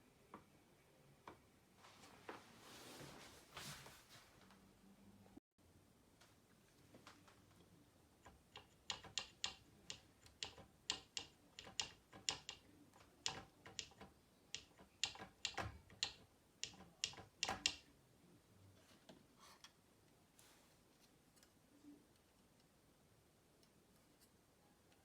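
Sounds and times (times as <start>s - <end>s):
rattling power supply fan ticks: 8.2s - 17.8s.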